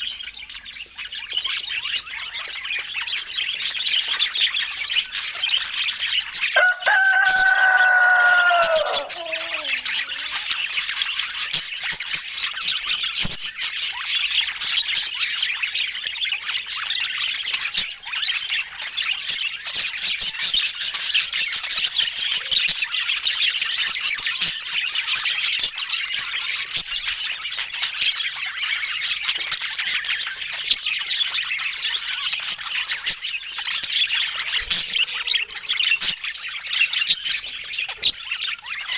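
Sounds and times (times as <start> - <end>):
budgerigars chattering: 2.2 - 11.0
drawn-out bird call: 6.6 - 10.6.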